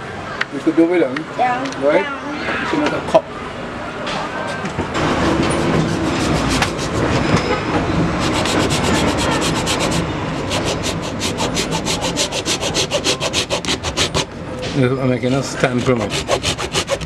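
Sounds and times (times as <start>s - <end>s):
hacksaw sawing gourd shell: 5.3s - 7.1s, 8.2s - 14.3s, 15.4s - 17.0s.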